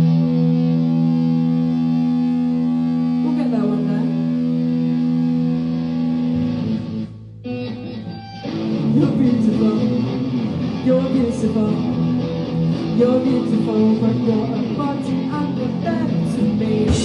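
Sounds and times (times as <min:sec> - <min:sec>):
guitar chord ringing: 0:00.0 - 0:13.4
live band playing: 0:00.0 - 0:17.0
plucked guitar notes: 0:00.0 - 0:17.0.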